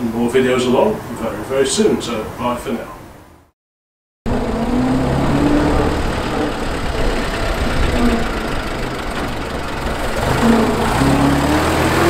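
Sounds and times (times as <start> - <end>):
vintage car engine running: 4.3 - 12.0.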